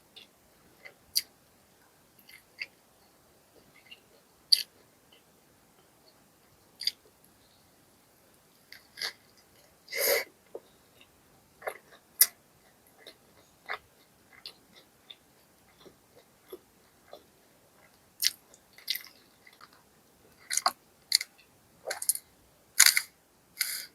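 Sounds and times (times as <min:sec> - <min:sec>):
person chewing: 0:02.2 - 0:02.8, 0:10.5 - 0:22.2, 0:22.8 - 0:23.9.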